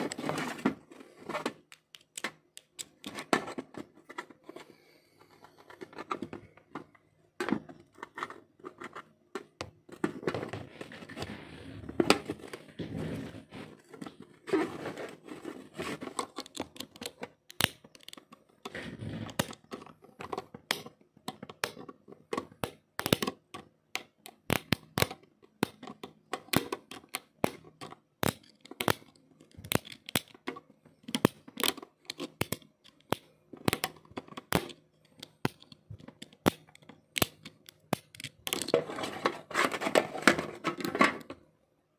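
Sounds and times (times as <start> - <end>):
sharp clicks and snaps: 1.6 - 3.2, 16.2 - 18.5, 22.4 - 38.7
scraping and rustling: 7.5 - 16.8, 38.5 - 41.3.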